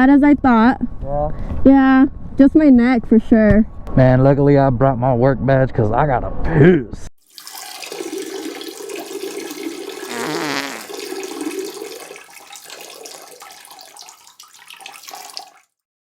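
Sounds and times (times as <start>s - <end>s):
water splashing into water: 7.3s - 15.7s.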